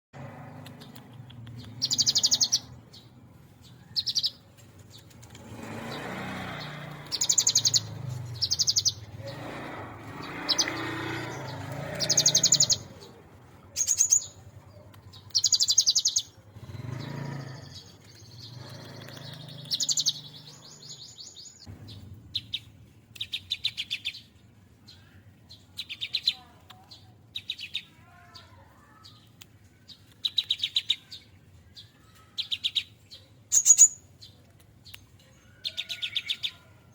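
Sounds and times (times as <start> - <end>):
bird singing high rapid notes: 0.8 - 4.5, 5.5 - 13.1, 13.8 - 14.5, 15.1 - 24.3, 31.8 - 34.3.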